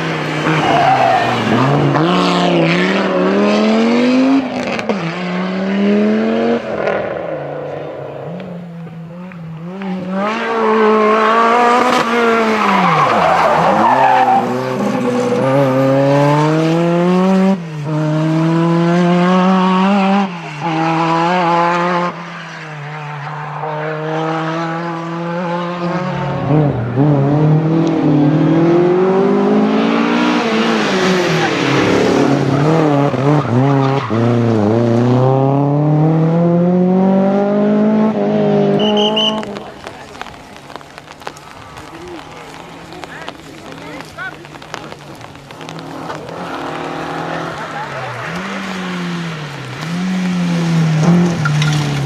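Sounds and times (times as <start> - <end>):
cars passing close by: 0.0 - 52.0
rally car engines revving: 0.0 - 52.0
tyre squeal: 10.5 - 15.6, 38.7 - 39.6.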